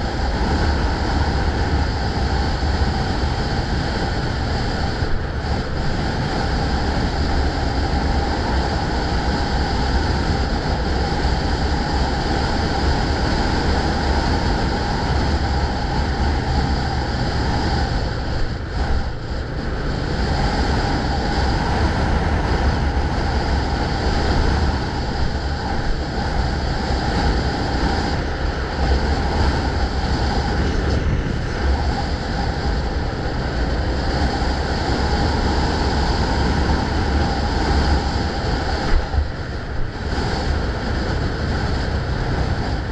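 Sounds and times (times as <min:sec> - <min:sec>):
road and traffic noise: 0:00.0 - 0:42.9
wind rushing over microphone: 0:00.0 - 0:42.9.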